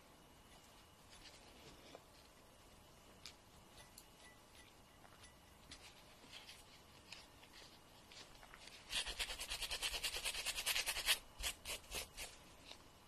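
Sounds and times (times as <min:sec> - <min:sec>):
fingernail being filed: 0:08.8 - 0:12.3.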